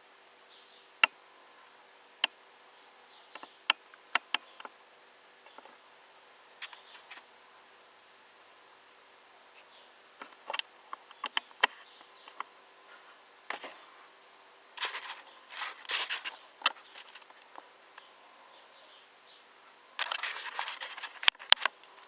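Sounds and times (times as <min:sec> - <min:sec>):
faint steady hum: 0:00.0 - 0:22.0
short scrapes and clicks: 0:14.8 - 0:17.4, 0:20.0 - 0:22.0.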